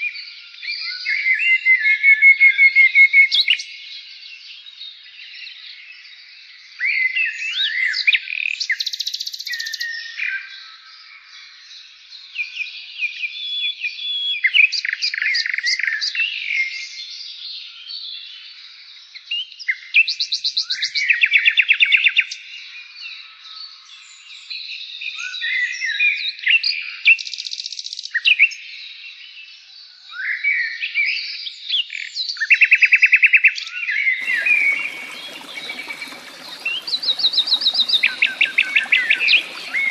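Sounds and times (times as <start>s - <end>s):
songbird singing: 34.2s - 39.9s.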